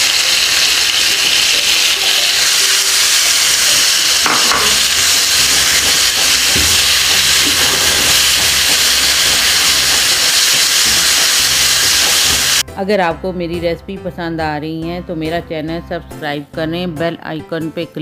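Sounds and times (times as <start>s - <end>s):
chicken sizzling in hot oil: 0.0s - 12.6s.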